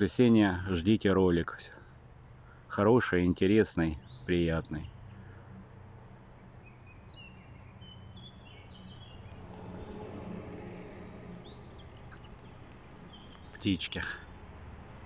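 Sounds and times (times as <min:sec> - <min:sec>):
songbirds chirping and trilling: 0:00.0 - 0:15.0
low hum: 0:06.0 - 0:13.6.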